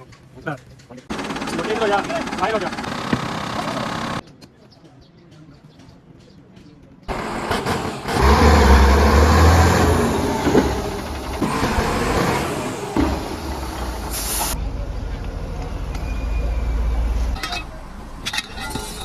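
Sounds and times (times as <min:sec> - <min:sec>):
heavy diesel engine running: 0:01.1 - 0:04.2, 0:07.1 - 0:16.1.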